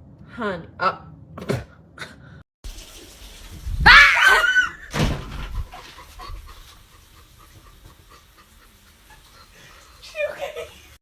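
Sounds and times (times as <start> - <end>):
dog panting: 5.6 - 10.0.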